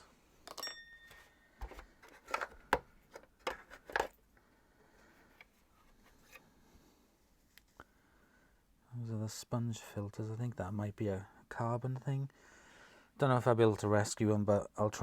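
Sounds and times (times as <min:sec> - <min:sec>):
plastic parts clicking and knocking: 0:00.4 - 0:04.2.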